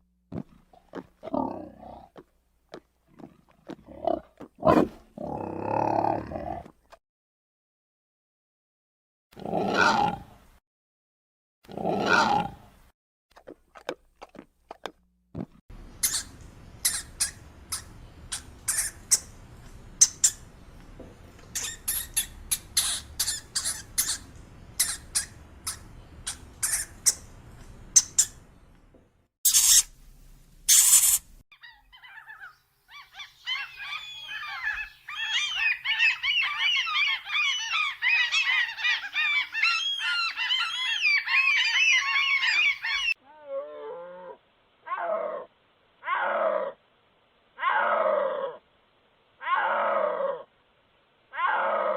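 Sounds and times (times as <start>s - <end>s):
chorus of twittering calls: 16.0s - 20.5s, 21.4s - 28.4s, 30.7s - 43.2s
rapid short animal squeaks: 21.5s - 27.2s, 29.5s - 29.9s, 30.7s - 31.2s
harsh animal call bursts: 21.5s - 27.3s, 29.4s - 29.9s, 30.7s - 31.4s
low falling animal calls: 49.4s - 50.5s.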